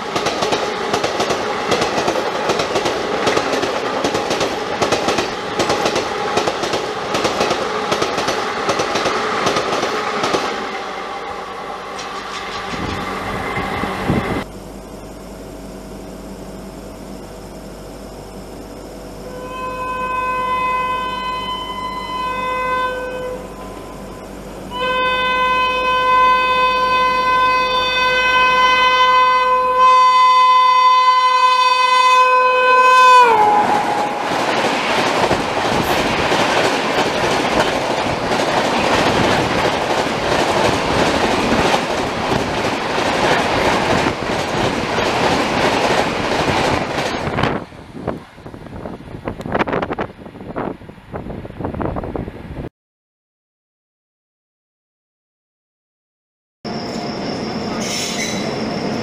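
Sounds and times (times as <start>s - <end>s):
train coaches clattering past: 0.0s - 14.5s, 33.2s - 48.5s, 56.7s - 59.0s
train horn blasts: 19.2s - 34.3s.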